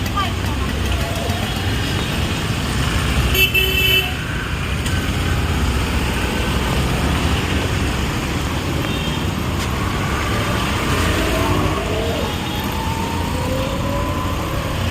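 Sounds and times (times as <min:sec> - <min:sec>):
road traffic rumbling: 0:00.0 - 0:14.9.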